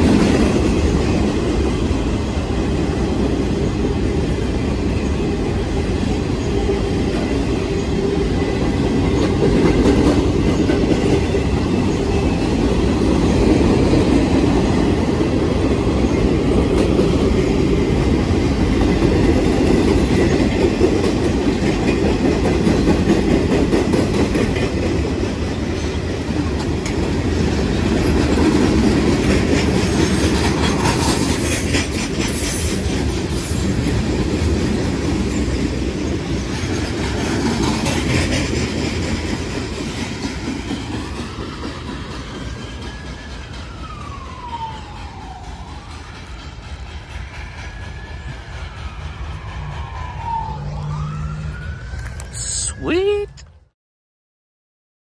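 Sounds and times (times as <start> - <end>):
train wheels clacking over joints: 7.0 - 12.6, 16.4 - 50.4.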